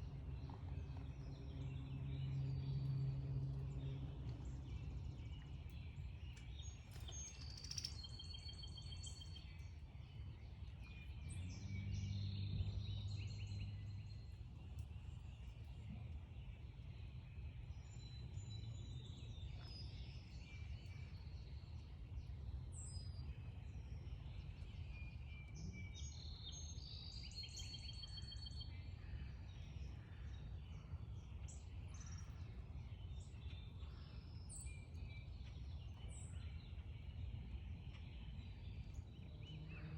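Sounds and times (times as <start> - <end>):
low background rumble: 0.0 - 27.3
songbirds chirping: 0.0 - 39.9.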